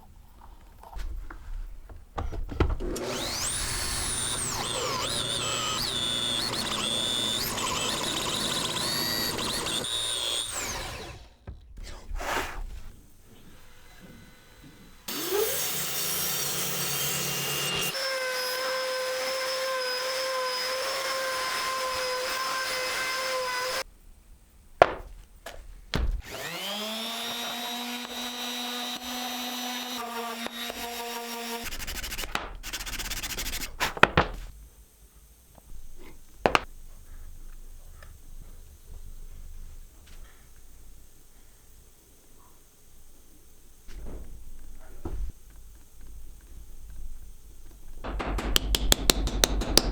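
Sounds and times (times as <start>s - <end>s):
woodworking power tools running: 2.8s - 11.4s, 13.2s - 23.8s, 26.2s - 33.6s
knocks: 24.8s - 26.3s, 48.0s - 49.9s.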